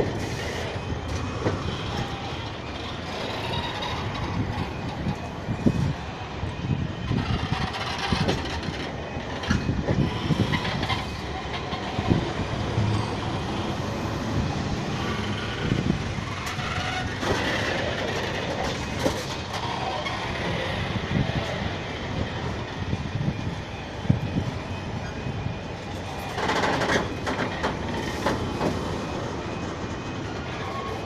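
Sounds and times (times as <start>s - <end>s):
train rumbling: 0.0s - 31.0s
wheels knocking on rails: 26.0s - 29.0s.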